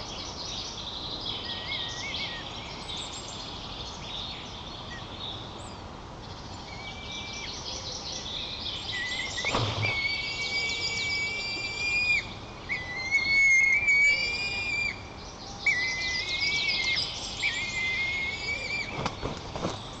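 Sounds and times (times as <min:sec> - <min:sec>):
birds chirping and singing: 0:00.0 - 0:20.0
eagle chick whistled calls: 0:08.9 - 0:19.1.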